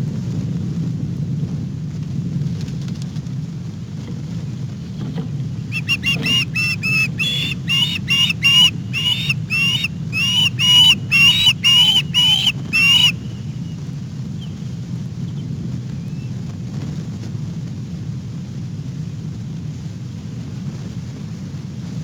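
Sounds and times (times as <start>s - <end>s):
bird harsh calls: 5.7s - 13.7s.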